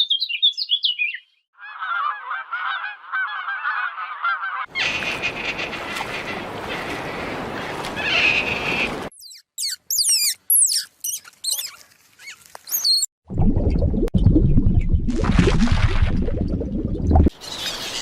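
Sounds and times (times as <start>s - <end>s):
flock of birds calling: 1.6s - 9.1s
sharp high falling squeaks: 9.1s - 13.1s.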